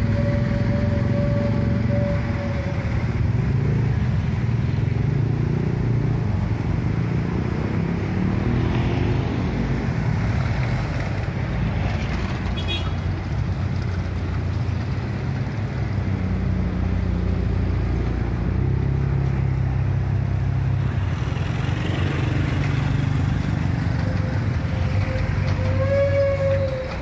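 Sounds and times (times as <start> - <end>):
high squealing tone: 0.0 - 3.0, 23.9 - 27.0
diesel locomotive engine rumble: 0.0 - 7.8, 9.6 - 27.0.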